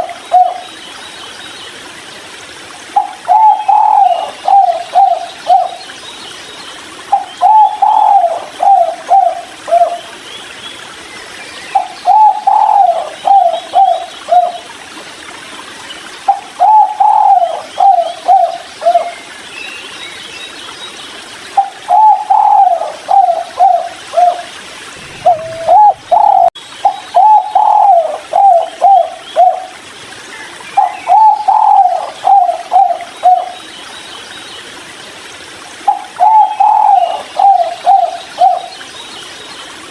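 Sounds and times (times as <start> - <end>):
dove cooing: 0.0 - 0.6, 3.0 - 5.8, 7.1 - 10.0, 11.8 - 14.6, 16.3 - 19.1, 21.6 - 29.7, 30.8 - 33.6, 35.9 - 38.7.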